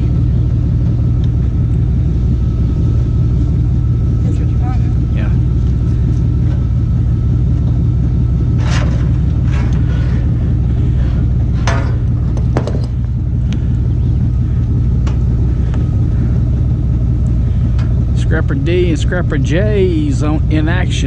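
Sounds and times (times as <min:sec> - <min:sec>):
engine idling: 0:00.0 - 0:21.0
scrapes and knocks: 0:08.6 - 0:10.3.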